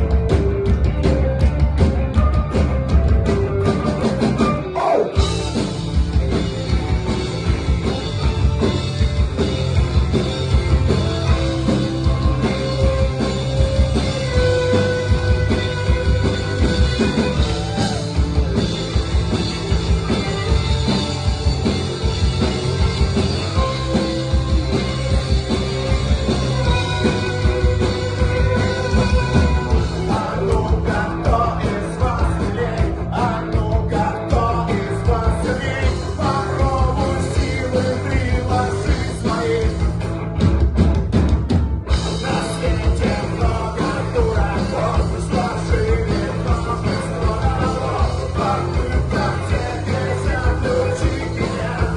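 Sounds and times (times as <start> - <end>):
rock band playing: 0.0 - 51.9
person singing: 28.3 - 39.9, 42.1 - 51.9.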